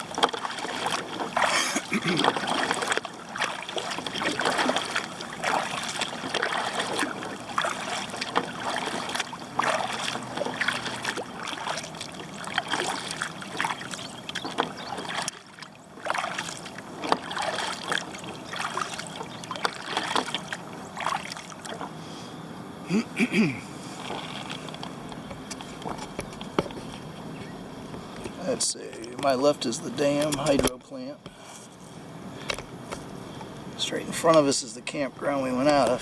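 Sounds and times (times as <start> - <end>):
water trickling off paddle: 0.0 - 22.0, 23.9 - 27.0
paddle strokes splashing: 0.0 - 22.2, 23.8 - 27.4.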